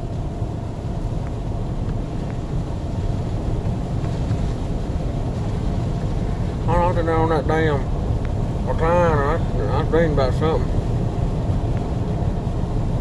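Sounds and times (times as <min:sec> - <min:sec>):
road and engine rumble: 0:00.0 - 0:13.0
faint light ticks: 0:01.2 - 0:02.5, 0:03.6 - 0:04.5, 0:08.2 - 0:08.4, 0:11.7 - 0:11.9.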